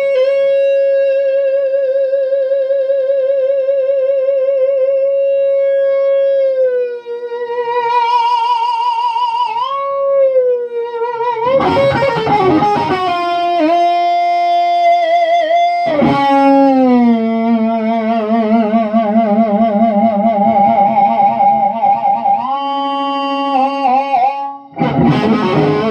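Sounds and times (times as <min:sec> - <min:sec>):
electric guitar lead with vibrato: 0:07.6 - 0:25.9.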